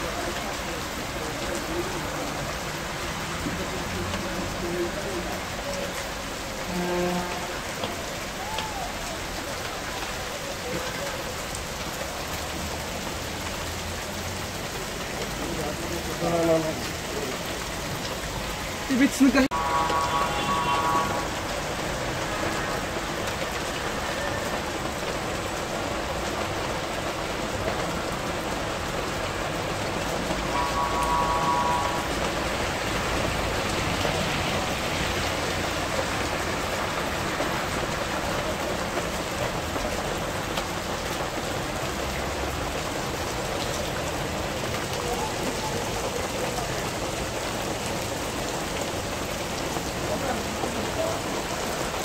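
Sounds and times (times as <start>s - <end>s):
heavy rain on wet pavement: 0.0s - 52.0s
brief tone: 19.5s - 21.3s, 30.5s - 32.5s.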